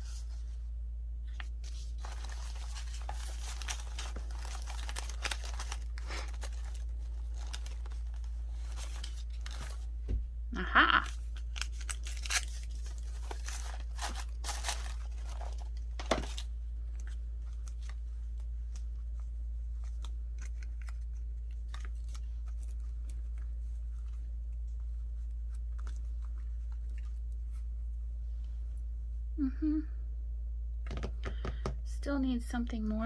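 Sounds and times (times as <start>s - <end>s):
low hum: 0.0s - 33.0s
paper rustling and tearing: 1.4s - 10.0s, 11.1s - 24.3s.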